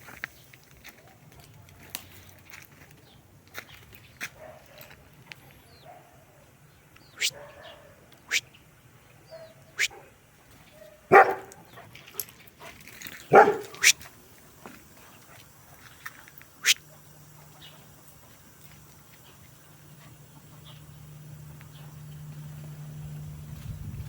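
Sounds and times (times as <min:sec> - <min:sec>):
dog barking: 0:04.4 - 0:04.9, 0:05.8 - 0:06.2, 0:07.2 - 0:08.0, 0:09.3 - 0:10.2, 0:10.8 - 0:11.6, 0:13.3 - 0:14.0.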